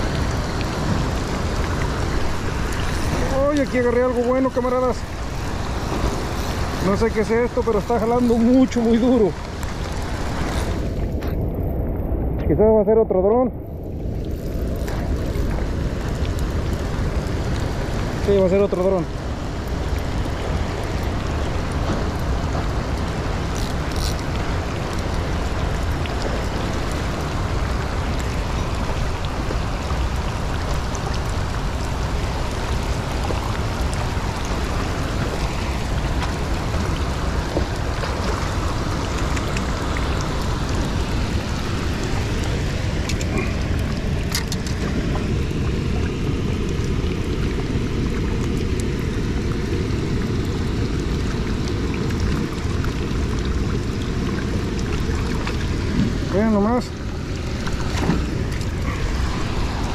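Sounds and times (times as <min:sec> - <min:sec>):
low rumble: 0:00.0 - 0:18.0
rain falling on water and rocks: 0:00.0 - 0:59.9.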